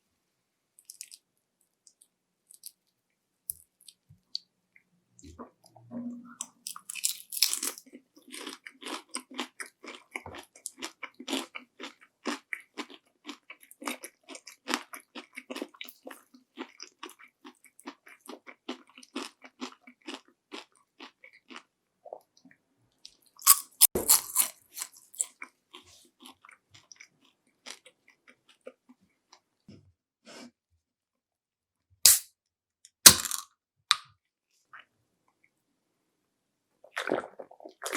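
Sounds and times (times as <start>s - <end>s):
crunchy bites into fried shrimp: 23.4s - 25.4s.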